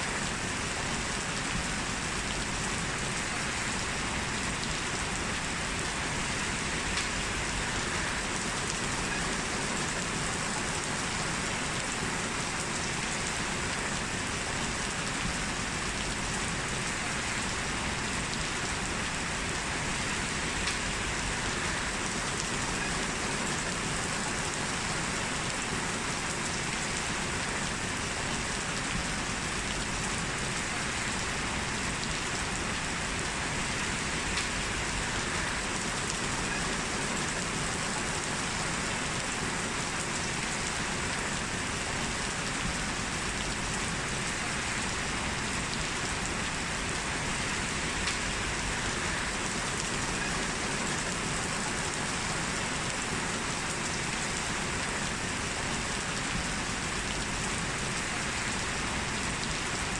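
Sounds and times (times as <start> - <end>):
heavy rain falling: 0.0 - 59.9
faint taps of raindrops: 6.9 - 7.2, 20.6 - 21.0, 34.3 - 34.6, 48.0 - 48.4.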